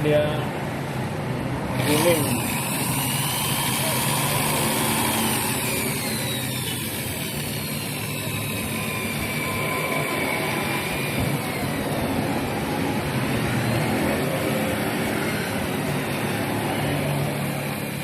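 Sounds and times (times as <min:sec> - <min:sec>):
electric drill running: 0:01.7 - 0:13.8.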